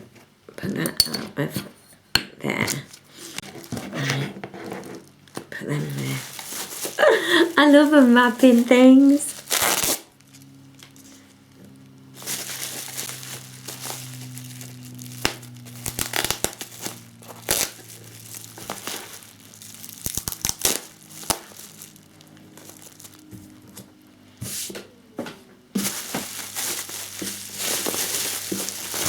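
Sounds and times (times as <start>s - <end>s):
bubble wrap crinkling: 4.7s - 23.7s, 25.7s - 29.0s.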